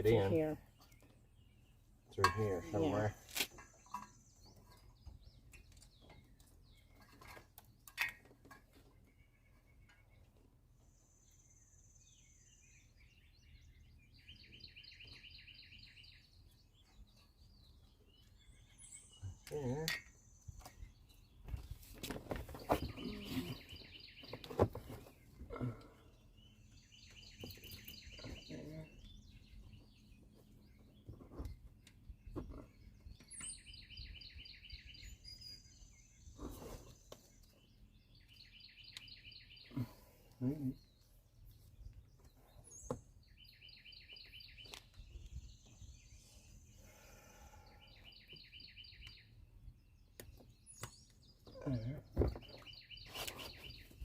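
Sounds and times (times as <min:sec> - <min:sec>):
faint bird song: 0:00.0 - 0:54.0
handling knocks and rustles: 0:21.4 - 0:25.4.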